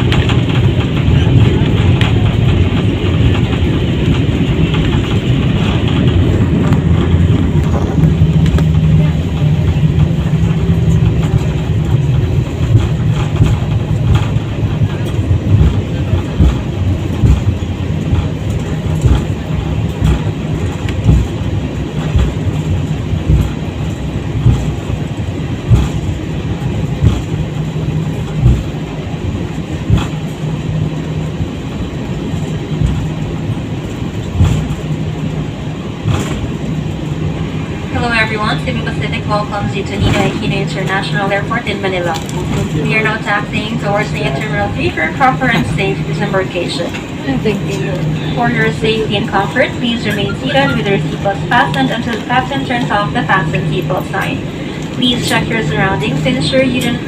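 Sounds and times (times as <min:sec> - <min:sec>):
wheels thumping over joints: 0:00.0 - 0:35.4
airliner engines rumbling: 0:00.0 - 0:57.0.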